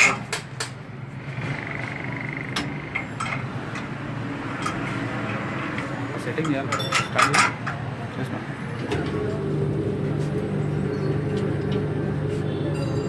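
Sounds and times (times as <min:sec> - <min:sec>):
wheel straightening machine hum: 0:08.8 - 0:13.0.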